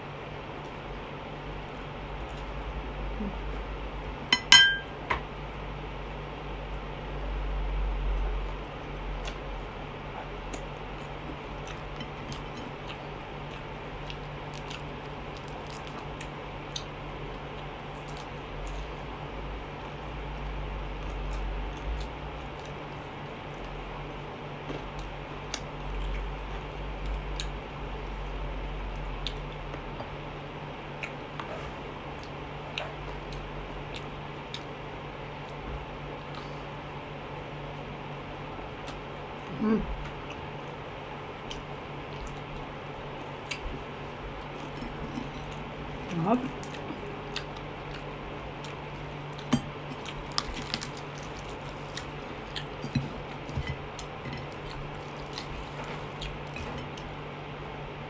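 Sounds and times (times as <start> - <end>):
steady low hum: 0.0 - 58.0
wet chewing and tearing meat: 8.5 - 28.2, 41.4 - 58.0.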